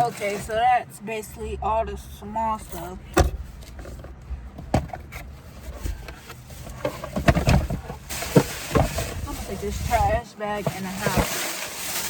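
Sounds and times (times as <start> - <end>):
plastic bag rustling: 0.0 - 0.7, 3.4 - 12.0
knocks and bumps: 2.6 - 11.4.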